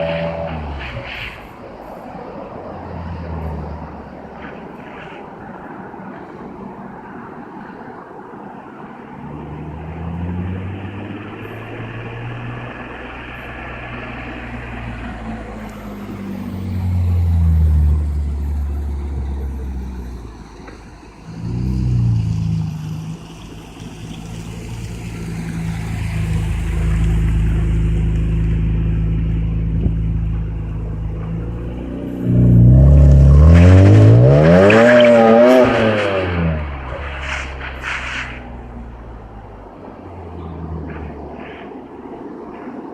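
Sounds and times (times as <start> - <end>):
car engine exhaust note: 9.4 - 23.6, 24.2 - 41.2.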